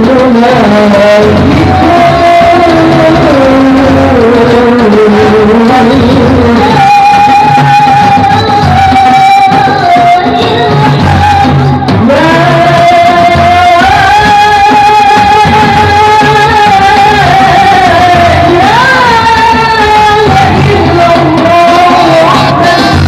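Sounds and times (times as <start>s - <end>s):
low drum beat: 0.0s - 23.0s.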